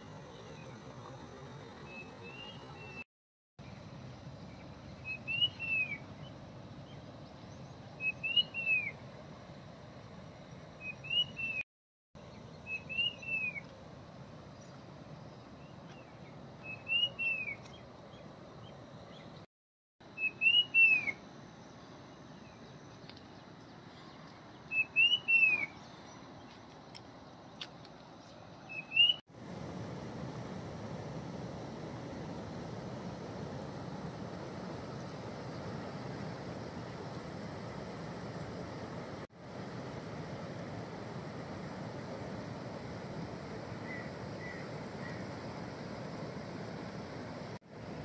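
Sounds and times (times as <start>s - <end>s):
bird whistled call: 1.9s - 3.0s, 5.0s - 6.1s, 8.0s - 9.0s, 10.8s - 11.6s, 12.6s - 13.7s, 16.6s - 17.8s, 20.1s - 21.2s, 24.7s - 26.1s, 28.7s - 29.2s, 43.8s - 45.2s
faint steady hiss: 12.2s - 48.0s.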